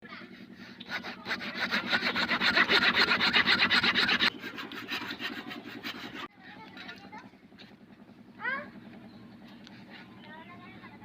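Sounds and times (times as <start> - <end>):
saw rasping through wood: 0.1 - 6.3.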